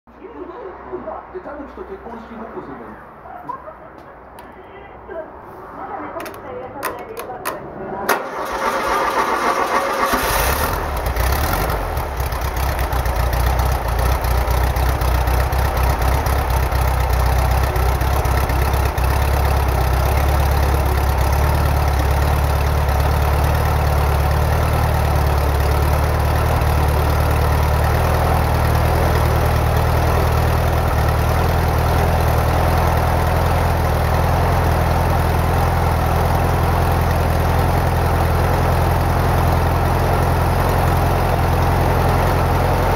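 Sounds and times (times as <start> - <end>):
starter motor cranking: 8.1 - 11.8
engine idling: 8.1 - 42.9.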